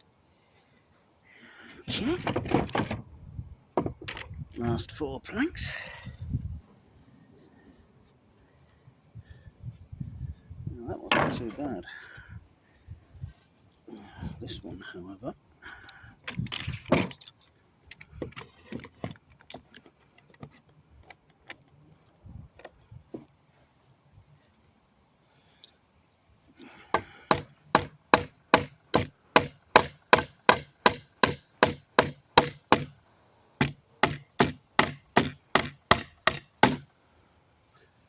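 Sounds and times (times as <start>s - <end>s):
handling knocks: 3.8s - 4.3s, 11.1s - 11.7s
hammer striking wooden plank: 11.1s - 11.5s, 27.0s - 32.9s, 33.6s - 36.9s.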